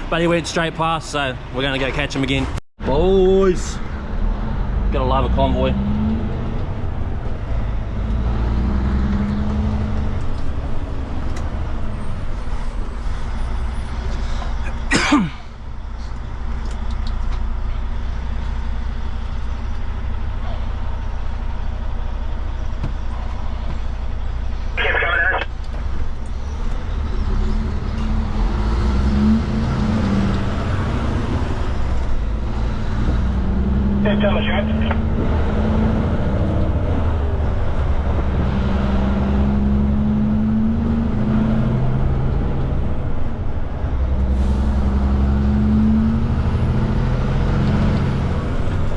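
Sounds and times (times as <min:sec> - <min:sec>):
road noise: 0:00.0 - 0:48.9
truck engine running: 0:24.8 - 0:25.7, 0:34.0 - 0:35.2.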